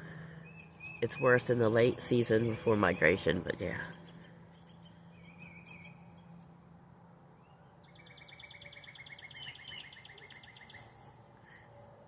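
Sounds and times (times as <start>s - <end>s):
bird rapid trill: 7.4s - 11.3s
songbird warbled call: 7.8s - 11.3s.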